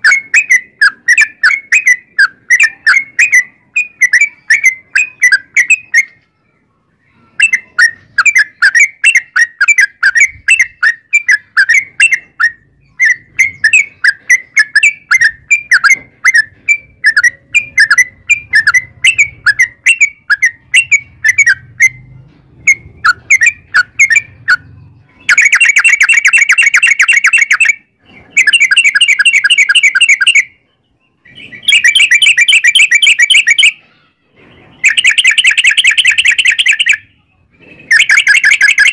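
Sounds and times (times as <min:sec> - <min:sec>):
bird chattering song: 0:00.0 - 0:38.9
bird rapid rolling trills: 0:07.4 - 0:30.5, 0:31.2 - 0:38.9.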